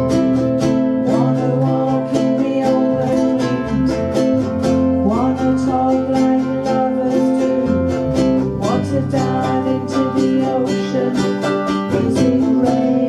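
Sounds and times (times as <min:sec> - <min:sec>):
ukuleles strumming chords: 0:00.0 - 0:13.0
voices singing: 0:00.0 - 0:13.0.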